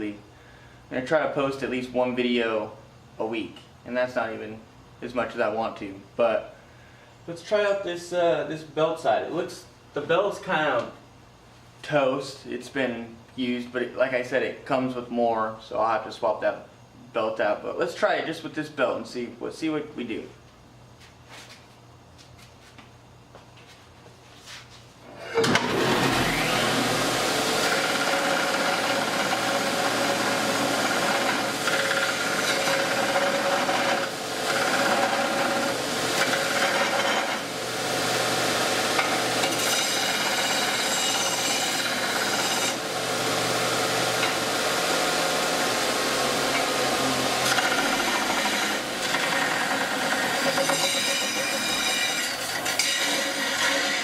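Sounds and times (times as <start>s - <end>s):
belt sander grinding steel: 25.2s - 54.0s.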